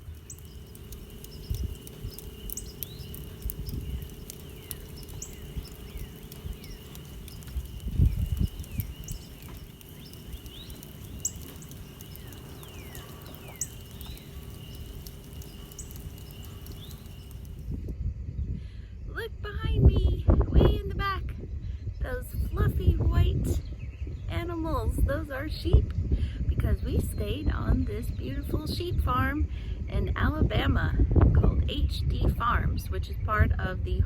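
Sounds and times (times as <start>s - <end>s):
birds chirping: 0.0s - 17.8s
low rumble: 0.0s - 18.5s.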